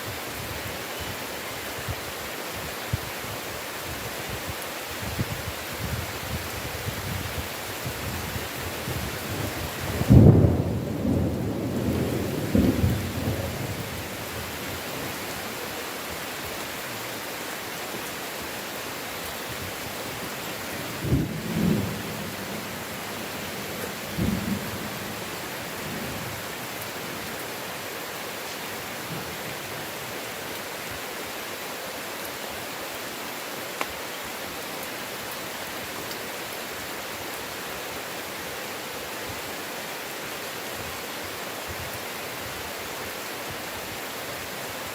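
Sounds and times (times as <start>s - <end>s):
heavy rain: 0.0s - 44.9s
thunder rumbling: 8.9s - 14.3s, 21.0s - 26.4s.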